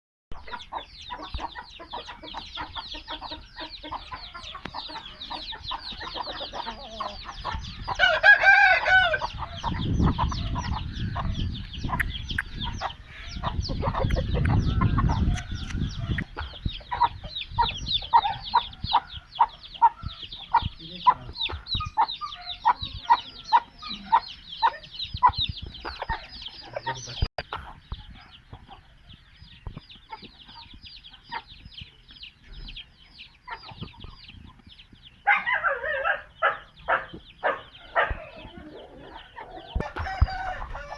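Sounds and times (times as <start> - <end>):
chickens clucking: 0.3 - 40.9.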